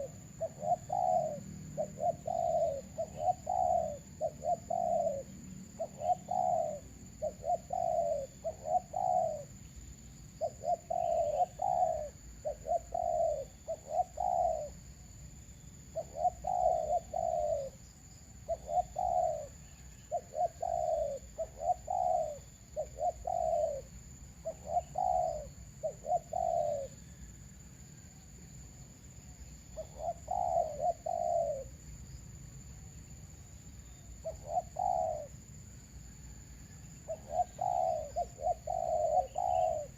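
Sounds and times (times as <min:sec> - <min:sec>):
doves cooing: 0:00.0 - 0:09.6, 0:10.4 - 0:14.8, 0:15.9 - 0:17.8, 0:18.4 - 0:27.3, 0:29.8 - 0:31.8, 0:34.2 - 0:35.4, 0:37.0 - 0:39.9.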